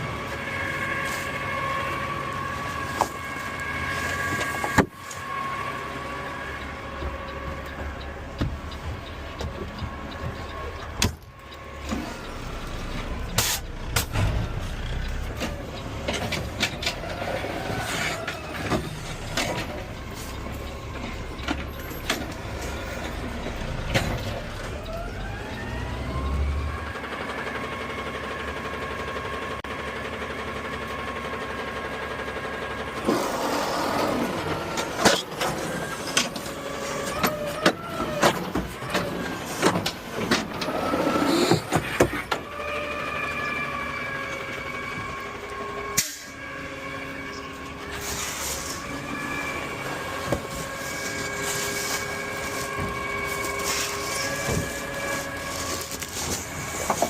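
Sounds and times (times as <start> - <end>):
garbage truck running: 0.0 - 57.0
hydraulic whine: 33.0 - 57.0.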